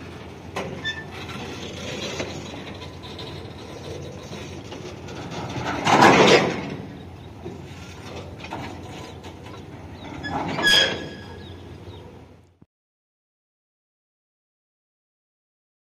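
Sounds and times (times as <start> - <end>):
freight wagons rolling on rails: 0.0 - 12.6
high wheel squeal: 0.7 - 5.8, 6.6 - 12.1.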